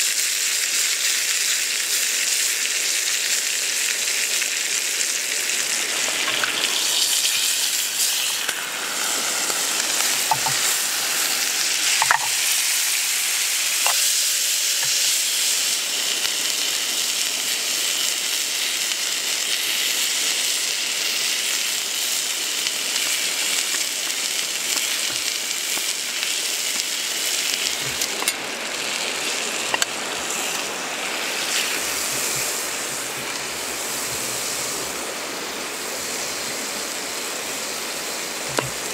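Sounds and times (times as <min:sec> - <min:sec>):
food frying sizzle: 0:00.0 - 0:38.9
sharp pops and crackles: 0:04.4 - 0:17.3, 0:21.3 - 0:35.0, 0:38.4 - 0:38.9.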